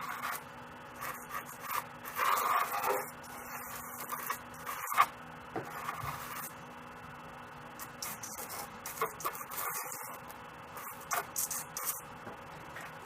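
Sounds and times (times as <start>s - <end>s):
pastel rubbing on paper: 1.0s - 5.1s, 7.8s - 12.0s.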